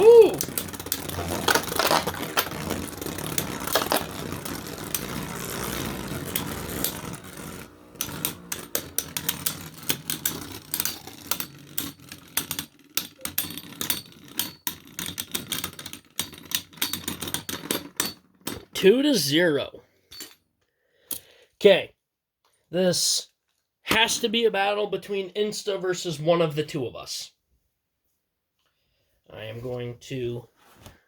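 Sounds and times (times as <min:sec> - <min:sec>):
spinning tops whirring and scraping: 0:00.0 - 0:18.3
sharp clicks and clatters: 0:00.0 - 0:18.8.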